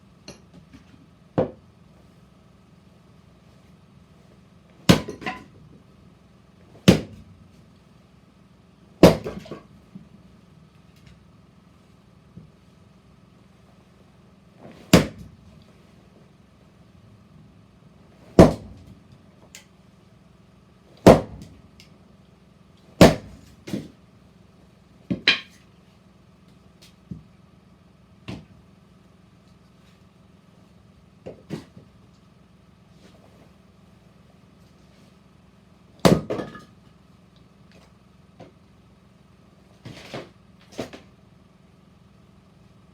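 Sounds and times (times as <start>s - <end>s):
heavy strikes splitting firewood: 4.9s - 5.5s, 6.8s - 7.2s, 9.0s - 9.6s, 14.9s - 15.3s, 18.4s - 18.9s, 21.0s - 21.6s, 23.0s - 24.0s, 36.0s - 36.6s.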